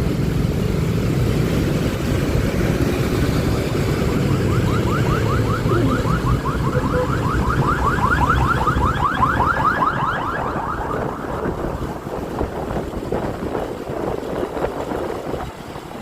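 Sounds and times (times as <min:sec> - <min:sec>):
traffic rumble: 0:00.0 - 0:16.0
wind on microphone: 0:00.0 - 0:16.0
vehicle alarm chirping: 0:04.3 - 0:10.4.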